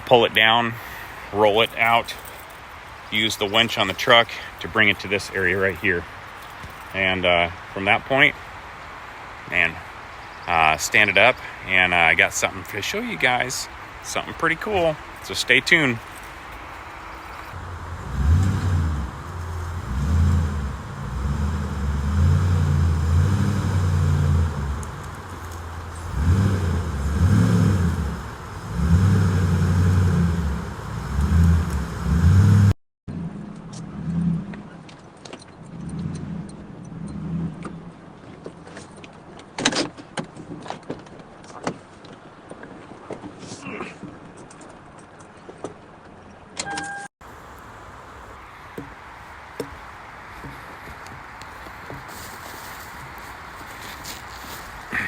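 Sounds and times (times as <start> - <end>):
truck engine rumbling: 10.5 - 38.2, 47.2 - 55.0
scattered clicks and crackles: 24.8 - 26.1.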